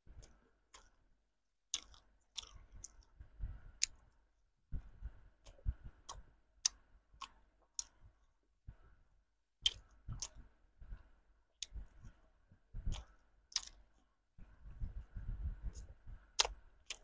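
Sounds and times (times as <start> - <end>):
chewing soft bread: 0.0 - 17.0
lip and tongue clicks: 1.7 - 3.2, 3.8 - 4.1, 5.4 - 8.0, 9.6 - 10.4, 12.9 - 13.9, 15.7 - 17.0.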